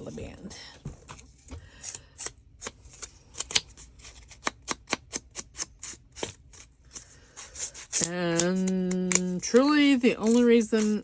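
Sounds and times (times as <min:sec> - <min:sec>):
scissors snipping paper: 0:01.8 - 0:11.0.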